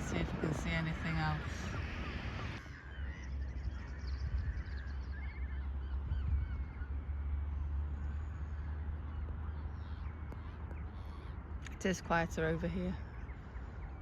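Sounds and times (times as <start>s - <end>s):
distant waterbird and gull calls: 0.0s - 14.0s
low rumble of road traffic: 0.0s - 14.0s.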